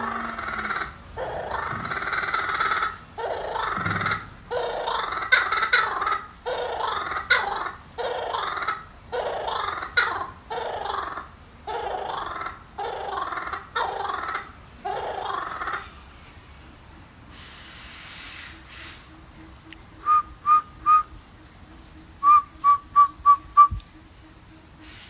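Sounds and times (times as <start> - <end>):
kookaburra laughing call: 0.0 - 15.9.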